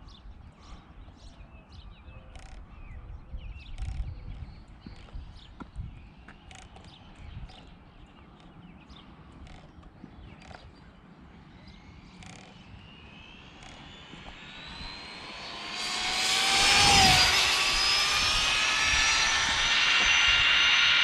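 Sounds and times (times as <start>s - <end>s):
electric motor whining: 11.6s - 21.0s.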